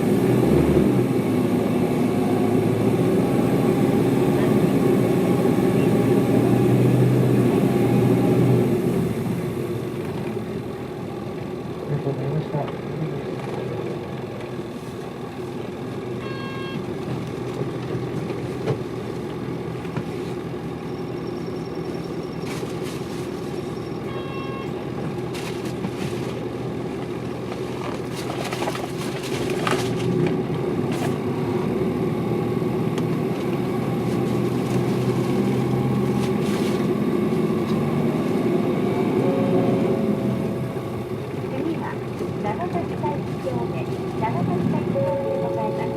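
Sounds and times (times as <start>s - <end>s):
bus diesel engine droning: 0.0s - 45.9s
brief electronic tones: 16.2s - 16.8s, 44.8s - 45.9s.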